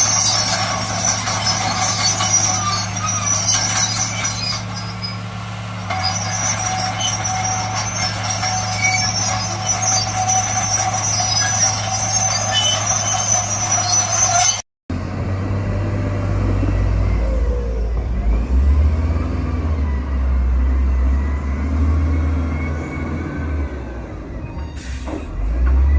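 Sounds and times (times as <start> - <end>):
high thin squealing: 0.0 - 5.3, 5.9 - 14.6
diesel construction machine running: 0.0 - 25.9
deeper engine with rising tone: 14.9 - 24.6, 25.2 - 25.9.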